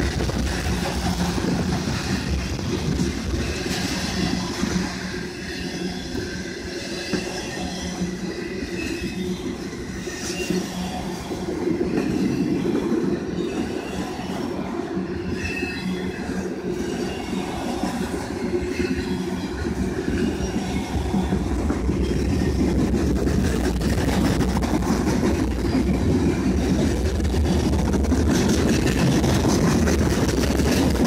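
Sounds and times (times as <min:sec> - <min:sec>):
wheel-on-rail rumble: 0:00.0 - 0:31.0
high-pitched wheel squeals: 0:03.4 - 0:21.4.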